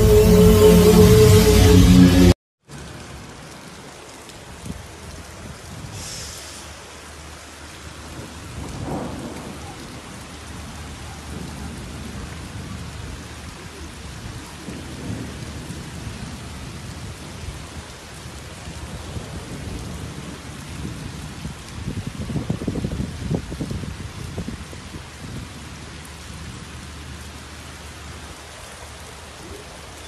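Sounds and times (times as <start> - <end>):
heavy rain pouring: 0.0 - 30.0
low thunder rumbles: 8.0 - 17.9.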